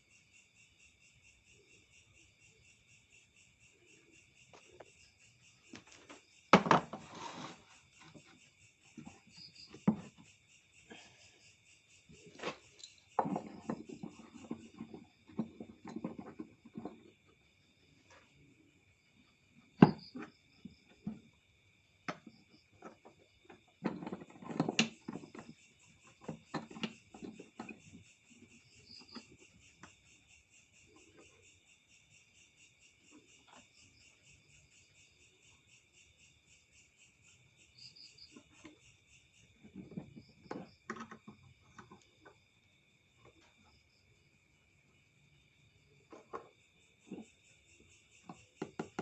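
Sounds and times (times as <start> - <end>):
crickets trilling: 0.0 - 49.0
handling knocks and clatter: 5.7 - 10.3, 12.2 - 17.4, 22.1 - 28.6.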